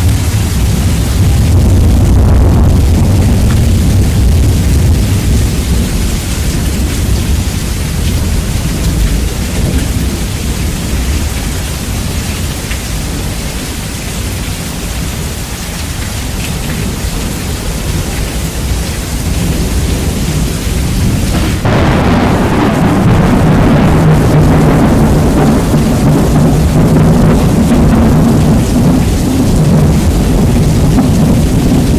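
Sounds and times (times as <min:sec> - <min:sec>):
thunder rumble: 0:00.0 - 0:13.8, 0:16.3 - 0:31.9
rain: 0:00.0 - 0:31.9.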